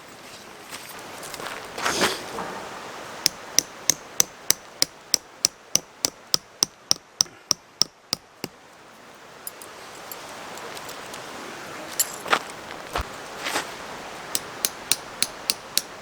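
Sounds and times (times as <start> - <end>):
hammer striking tent peg: 3.3 - 8.6, 14.3 - 16.0
scuffing noise: 12.2 - 13.8.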